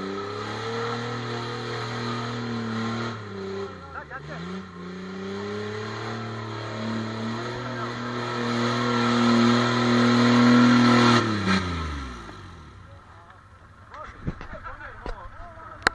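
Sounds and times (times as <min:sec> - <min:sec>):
buggy engine revving: 0:00.0 - 0:15.9.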